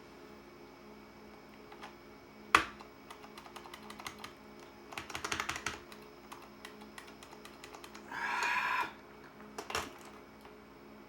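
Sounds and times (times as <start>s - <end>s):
mechanical keyboard typing: 2.6s - 8.0s, 9.6s - 10.2s.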